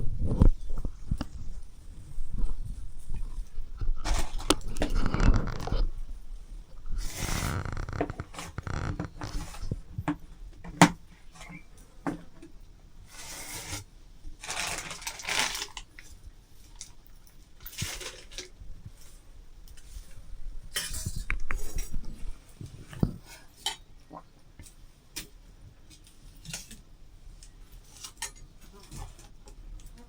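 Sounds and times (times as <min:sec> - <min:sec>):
scraping or rustling: 0:00.0 - 0:10.2, 0:13.1 - 0:16.9, 0:17.6 - 0:23.7.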